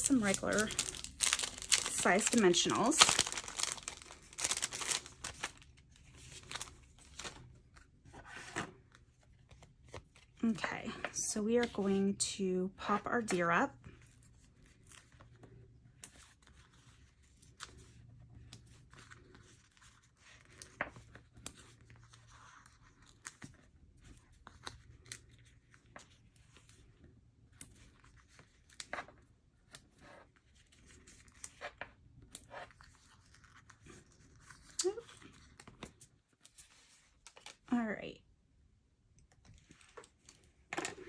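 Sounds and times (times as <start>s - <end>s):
low steady hum: 0.0s - 8.1s
small clicks and scratches: 13.4s - 37.7s, 39.1s - 41.0s.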